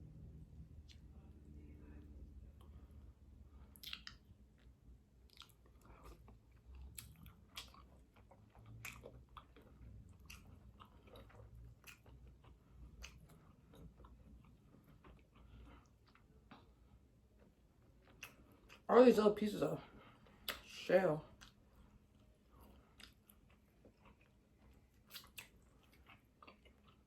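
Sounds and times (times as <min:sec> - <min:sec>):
chewing crunchy crab: 0:03.5 - 0:18.9, 0:21.3 - 0:27.0.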